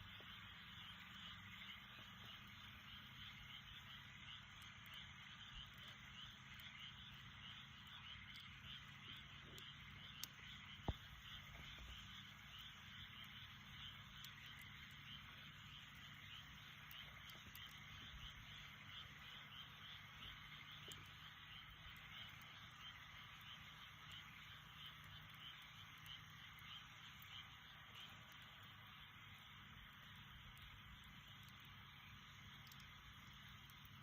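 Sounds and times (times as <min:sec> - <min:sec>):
campfire pops: 0:00.0 - 0:34.0
frogs trilling: 0:00.0 - 0:34.0
low steady hum: 0:00.0 - 0:34.0.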